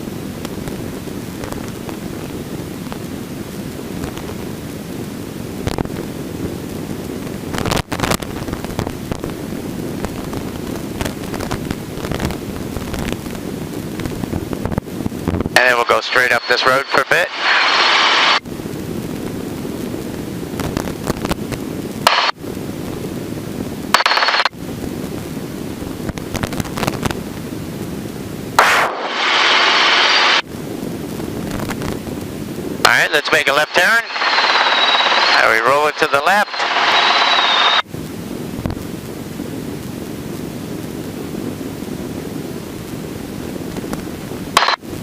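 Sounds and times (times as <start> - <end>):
helicopter cabin rotor rumble: 0.0 - 45.0
radio hiss bursts: 15.6 - 18.4, 22.0 - 22.4, 23.9 - 24.5, 28.6 - 30.5, 32.8 - 37.9, 44.6 - 44.9.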